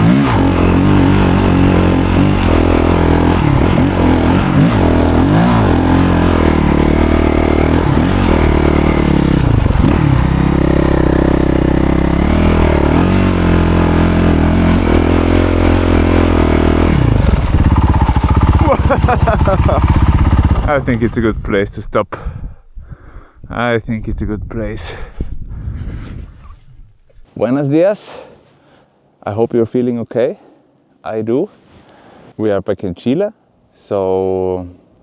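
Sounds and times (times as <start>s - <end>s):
engine clatter: 0.0s - 20.8s
motorcycle engine revving: 0.0s - 21.2s.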